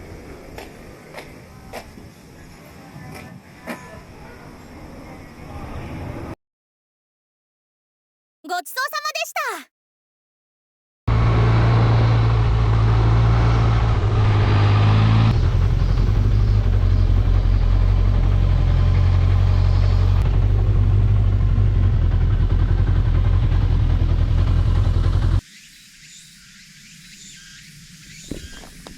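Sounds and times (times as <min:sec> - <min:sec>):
motorcycle engine running: 0:11.1 - 0:25.4.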